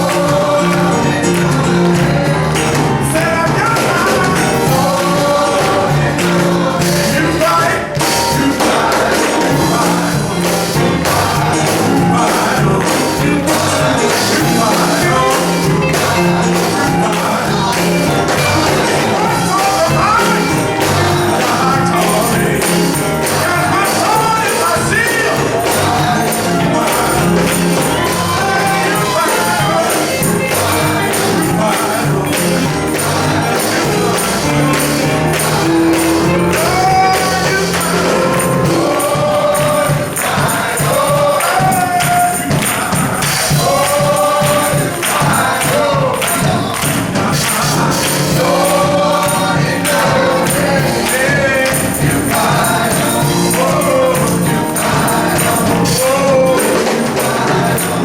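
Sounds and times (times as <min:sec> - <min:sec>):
bass notes: 0:00.0 - 0:39.9
band playing: 0:00.0 - 0:58.0
male chorus singing: 0:00.0 - 0:58.0.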